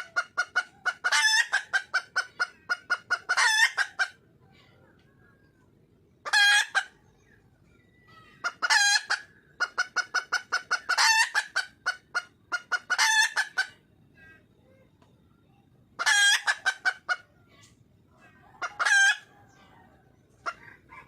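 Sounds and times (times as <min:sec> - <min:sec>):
hen calling: 0:00.0 - 0:04.2
hen clucking: 0:00.0 - 0:15.1, 0:15.9 - 0:21.0.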